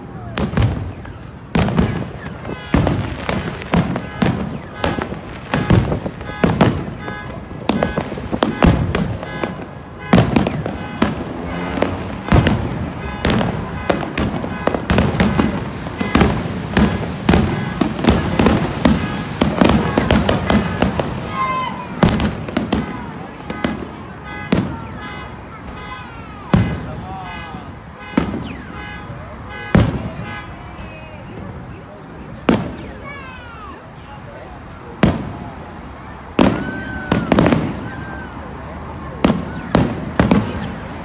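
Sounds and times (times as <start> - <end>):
fireworks crackling: 0.0 - 41.0
fireworks shell bursts booming: 0.4 - 25.0.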